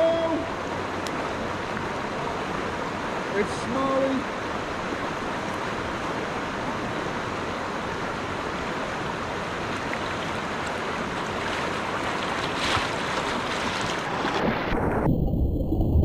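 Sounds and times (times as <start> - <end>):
creek water rushing: 0.0 - 15.1
crackly splash: 9.7 - 15.8
muffled bumping and sloshing: 9.9 - 14.9.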